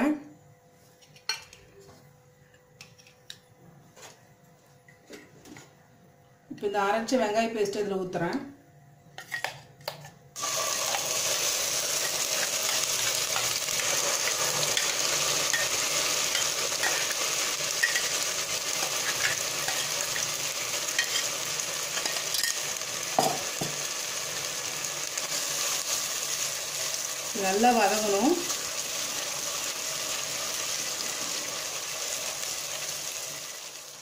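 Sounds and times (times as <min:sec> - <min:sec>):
paste sizzling in hot oil: 0:10.4 - 0:34.0.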